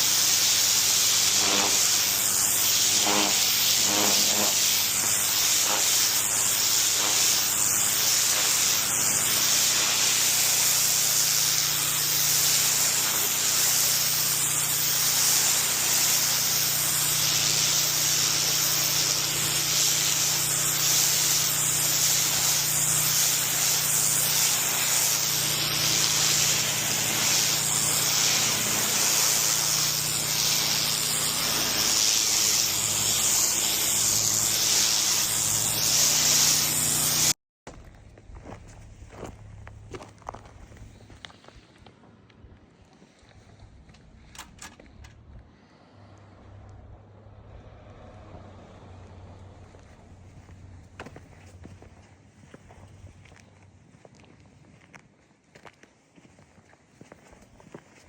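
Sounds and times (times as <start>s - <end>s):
liquid spraying through nozzle: 0.0s - 37.4s
low hum: 35.1s - 41.6s.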